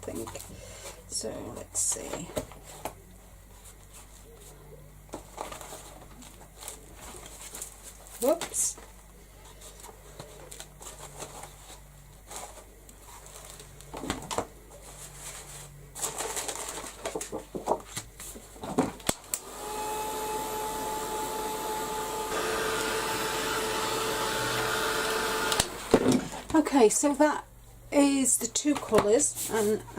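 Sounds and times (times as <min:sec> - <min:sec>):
paper and tools handling: 0:01.8 - 0:19.2
heat tool blowing and whining: 0:19.3 - 0:26.3.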